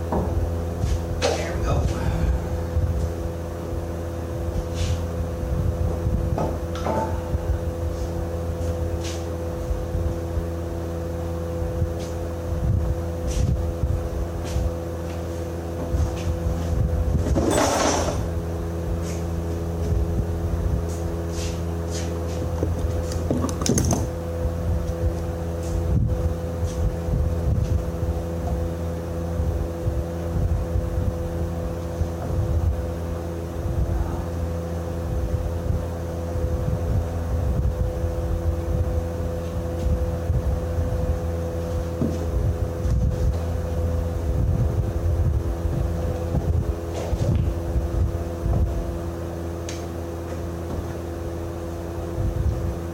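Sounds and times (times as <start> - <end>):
engine running steadily: 0.0 - 52.9
loud metallic clank: 17.4 - 18.3.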